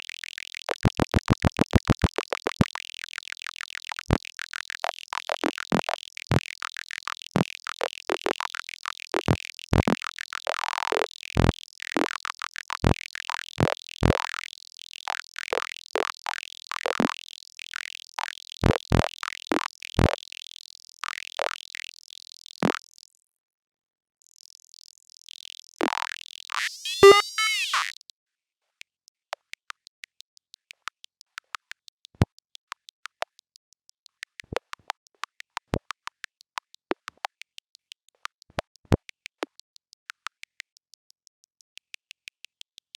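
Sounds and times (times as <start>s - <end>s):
electronic chirp sweeping in pitch: 26.6s - 27.9s
electronic clicks and blips: 26.6s - 27.9s.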